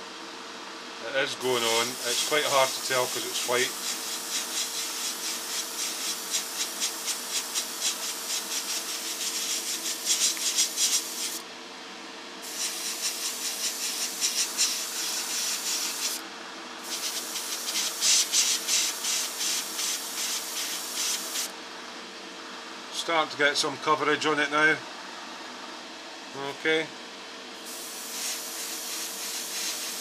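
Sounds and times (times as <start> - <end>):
steady hum: 0.0 - 30.0
airbrush spraying hiss: 1.5 - 11.4, 12.4 - 16.2, 16.8 - 21.5, 27.6 - 30.0.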